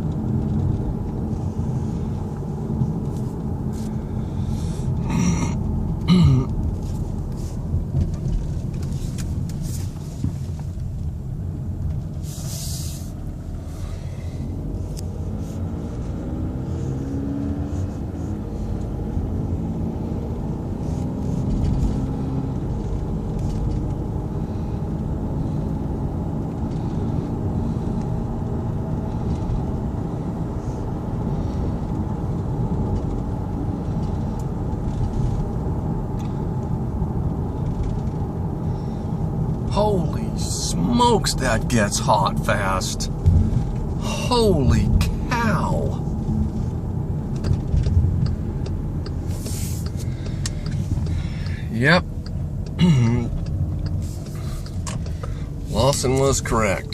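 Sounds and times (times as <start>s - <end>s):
diesel car engine running: 0.0s - 56.9s
brief hiss: 12.2s - 13.2s.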